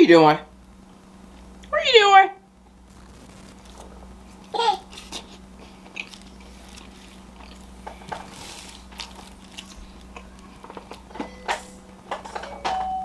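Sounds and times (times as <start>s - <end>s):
chewing and crunching: 3.2s - 11.2s.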